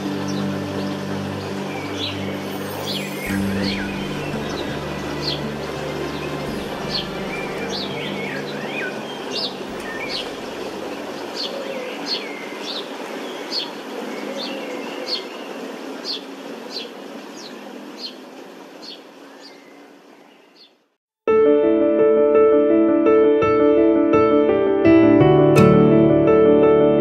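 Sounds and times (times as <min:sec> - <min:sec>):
bird chirping: 0:00.0 - 0:18.2, 0:18.8 - 0:20.8
outdoor background hiss: 0:00.0 - 0:21.0.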